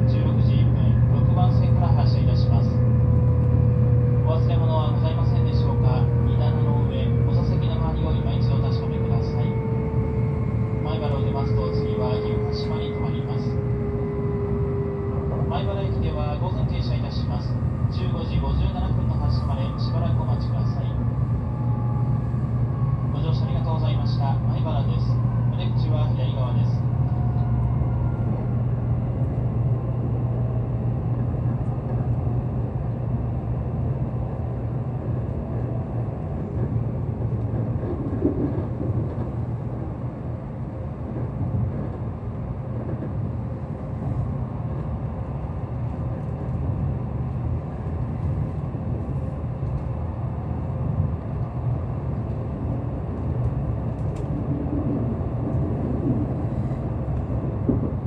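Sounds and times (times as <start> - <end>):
train rumble and hum: 0.0 - 58.0.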